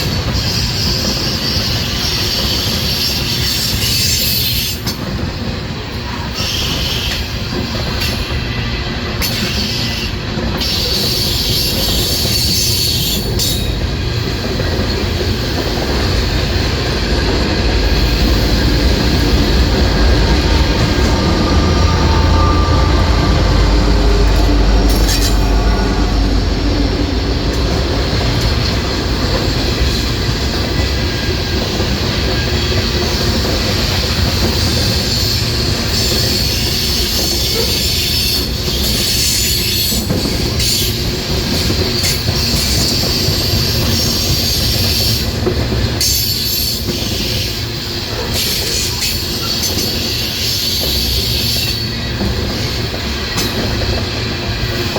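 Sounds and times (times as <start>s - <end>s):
train wheels clattering on rails: 0.0s - 54.9s
heavy low rumble: 16.4s - 29.6s
steel wheel squeal: 17.8s - 26.4s, 45.9s - 53.8s.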